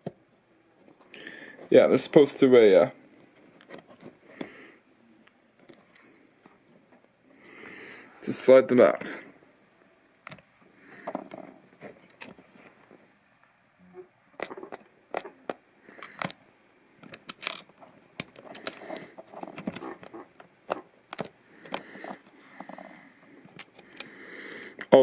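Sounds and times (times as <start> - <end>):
plastic bricks clicking: 17.0 - 18.8
plastic pieces scraping: 17.0 - 22.4.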